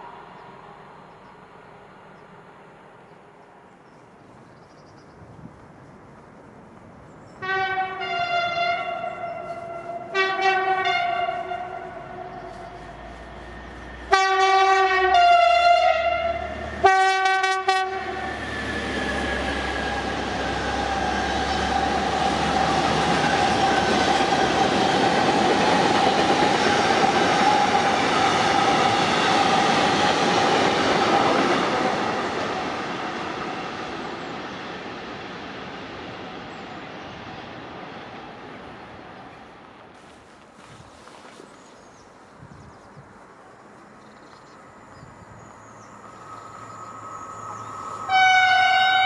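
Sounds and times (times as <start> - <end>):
train hum: 0.0 - 49.0
train wheels rumbling: 0.0 - 49.0
train horn blasts: 7.4 - 18.4, 47.9 - 49.0.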